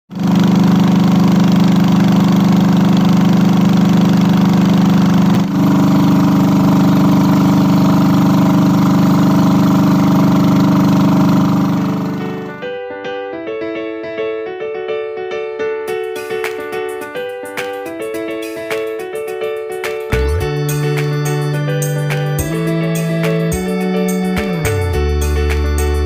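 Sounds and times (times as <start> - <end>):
small engine running: 0.1 - 12.6, 19.6 - 26.0.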